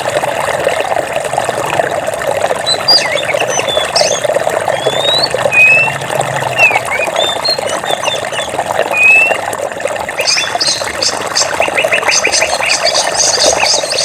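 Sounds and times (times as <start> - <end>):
stream water trickling: 0.0 - 14.0
birds chirping: 2.6 - 9.4, 10.1 - 14.0
birds whistling: 2.6 - 9.4, 10.2 - 14.0.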